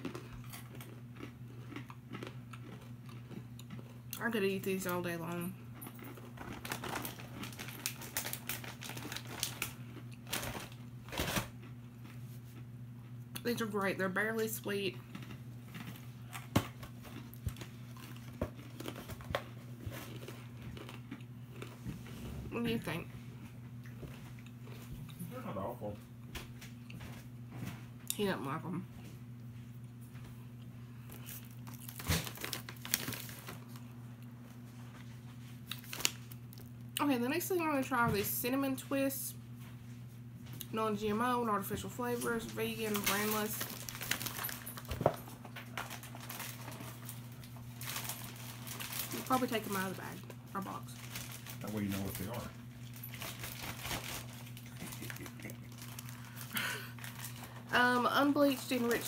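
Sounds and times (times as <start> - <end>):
biscuits crunched in the mouth: 0.0 - 4.0, 15.1 - 21.8, 35.6 - 36.7, 53.1 - 57.5
snack packaging crinkling: 0.0 - 4.0, 5.8 - 12.6, 15.0 - 21.8, 31.0 - 34.0, 34.9 - 36.9, 42.1 - 59.0
steady low hum: 0.0 - 59.0.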